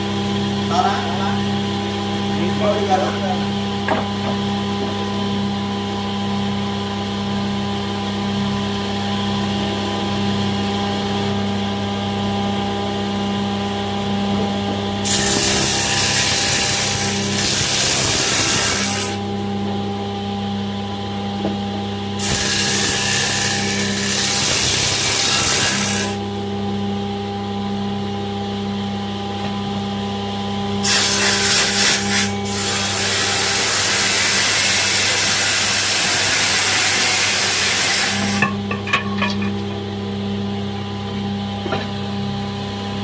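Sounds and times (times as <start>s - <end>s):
woodworking machine humming: 0.0s - 43.0s
machine cutting wood hiss: 15.0s - 19.2s, 22.2s - 26.2s.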